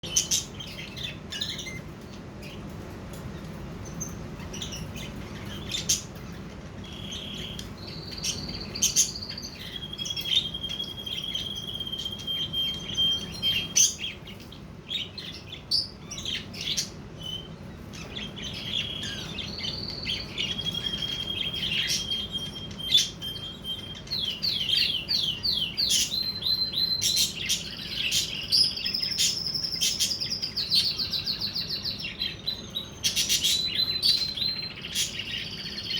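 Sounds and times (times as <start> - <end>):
budgerigars chirping and warbling: 0.0 - 2.8, 3.4 - 35.9.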